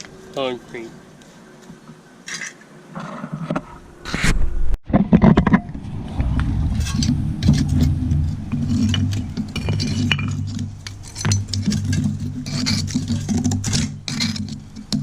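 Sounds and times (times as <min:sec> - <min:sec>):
low hum: 0:03.6 - 0:15.0
metal tools chipping concrete: 0:06.8 - 0:15.0.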